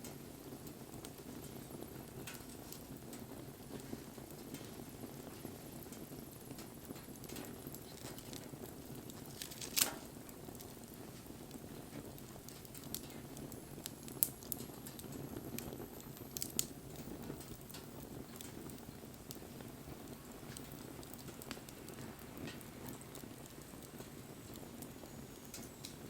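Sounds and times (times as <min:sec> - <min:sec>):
bonfire flame rushing: 0:00.0 - 0:26.0
fire crackling: 0:00.0 - 0:26.0
sharp pops of burning wood: 0:00.0 - 0:26.0.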